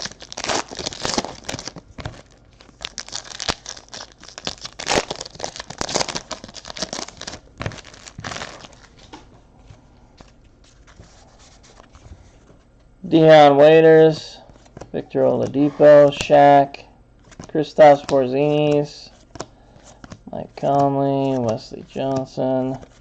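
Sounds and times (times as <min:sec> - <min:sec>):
card pack wrappers tearing: 0:00.0 - 0:09.0.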